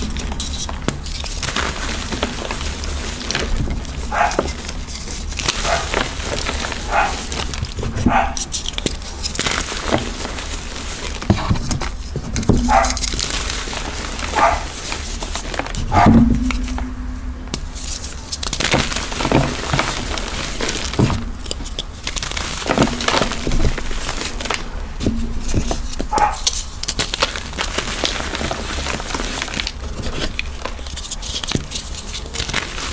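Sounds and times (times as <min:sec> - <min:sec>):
chalk being crushed: 0:00.0 - 0:16.8, 0:17.5 - 0:32.9.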